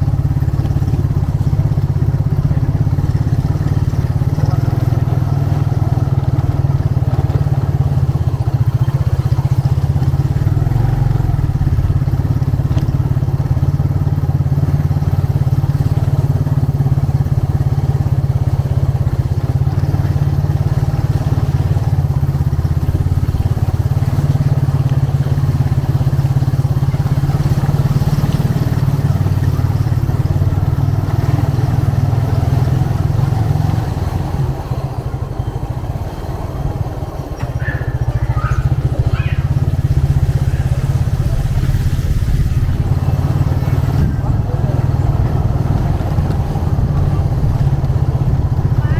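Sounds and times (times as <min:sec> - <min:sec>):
motorcycle engine rumbling: 0:00.0 - 0:48.9.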